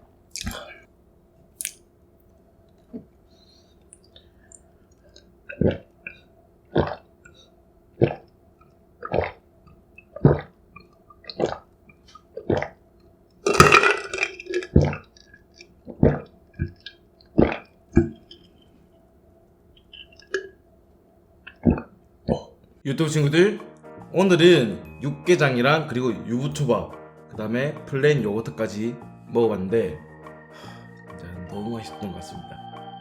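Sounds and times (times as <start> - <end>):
swallowing gulps: 0.4 - 0.8, 5.5 - 7.4, 8.0 - 8.3, 9.0 - 12.8, 13.6 - 18.5, 21.5 - 22.6
throaty sound: 0.4 - 0.8, 10.1 - 11.7, 17.4 - 18.2.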